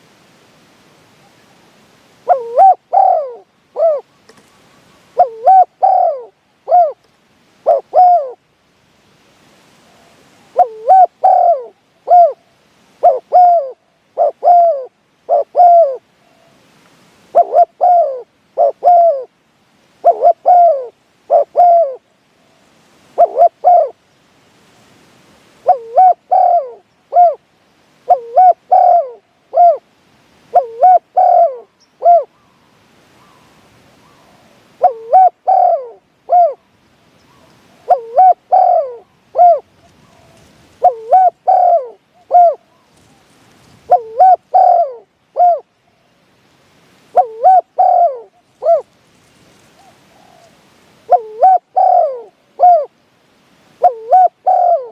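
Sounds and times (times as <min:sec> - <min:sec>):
dove cooing: 0:02.2 - 0:08.4, 0:10.0 - 0:16.6, 0:17.3 - 0:19.3, 0:20.0 - 0:22.1, 0:23.2 - 0:24.0, 0:25.6 - 0:27.4, 0:28.0 - 0:29.9, 0:30.5 - 0:32.5, 0:33.2 - 0:36.7, 0:37.3 - 0:45.7, 0:47.1 - 0:48.9, 0:49.7 - 0:53.0, 0:53.8 - 0:54.9.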